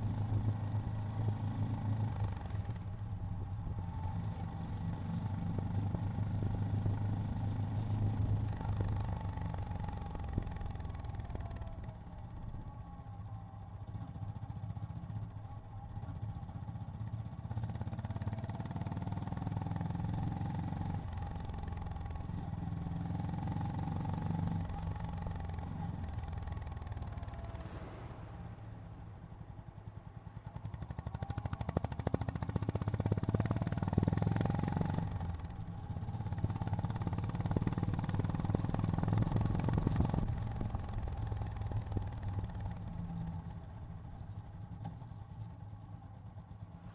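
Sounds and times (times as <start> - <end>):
motorcycle engine running: 29.3 - 46.9.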